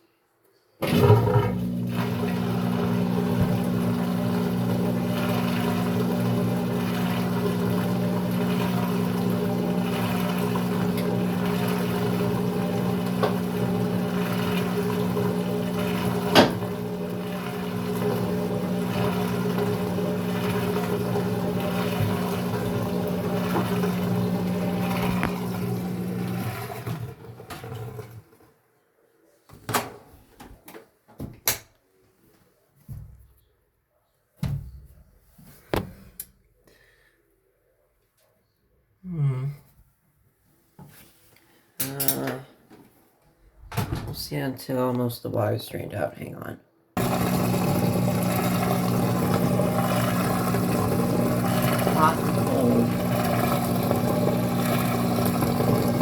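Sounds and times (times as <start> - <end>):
water gurgling: 0.8 - 28.2, 47.0 - 56.0
washer drain pump humming: 0.8 - 28.4, 47.0 - 56.0.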